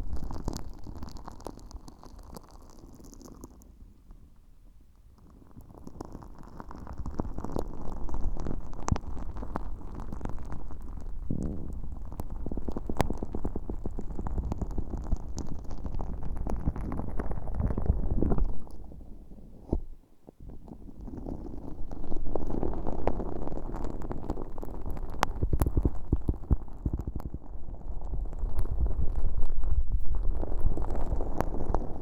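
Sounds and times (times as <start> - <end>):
sticky slime crackling and popping: 0.0 - 3.7, 5.2 - 18.8, 20.9 - 32.0
muffled rumble: 25.1 - 32.0.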